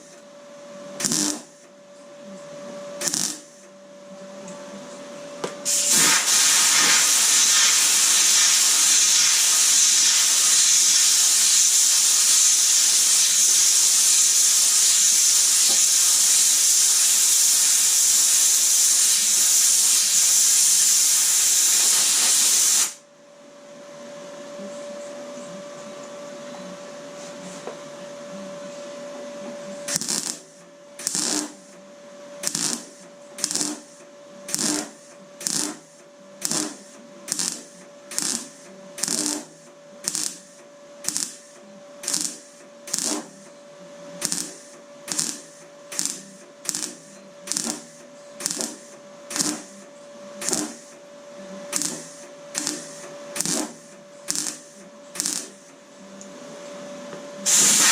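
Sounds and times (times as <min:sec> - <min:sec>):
welder hum: 0:00.0 - 0:00.2, 0:01.0 - 0:01.7, 0:02.9 - 0:03.7, 0:05.4 - 0:23.0, 0:29.7 - 0:31.8, 0:32.4 - 0:43.6, 0:44.2 - 0:56.4, 0:57.4 - 0:57.9
welder blips: 0:01.0 - 0:01.7, 0:03.0 - 0:03.7, 0:29.9 - 0:31.8, 0:32.4 - 0:43.5, 0:44.2 - 0:51.1, 0:51.7 - 0:55.8, 0:57.4 - 0:57.9.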